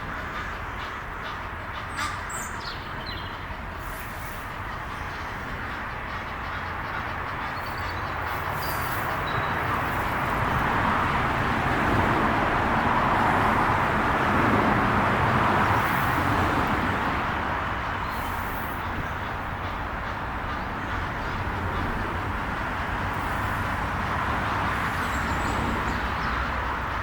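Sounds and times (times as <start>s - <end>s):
vehicle passing: 5.4s - 27.0s.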